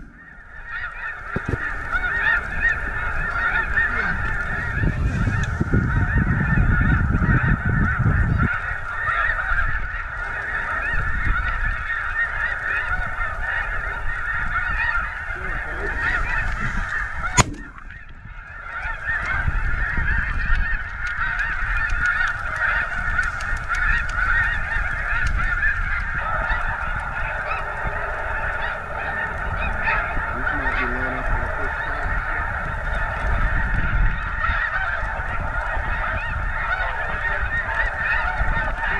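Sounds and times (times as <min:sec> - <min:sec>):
low rumble: 0:00.0 - 0:03.2
geese honking: 0:00.0 - 0:38.9.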